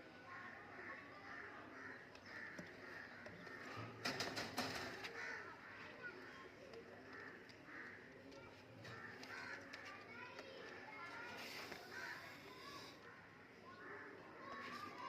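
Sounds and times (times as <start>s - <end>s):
birds calling: 1.3s - 8.2s.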